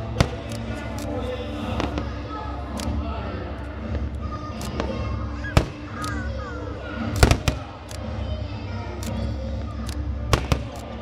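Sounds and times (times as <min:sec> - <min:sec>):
fireworks bursting: 0:00.0 - 0:02.2, 0:04.7 - 0:06.2, 0:07.1 - 0:07.6, 0:10.3 - 0:10.9
music: 0:00.0 - 0:11.0.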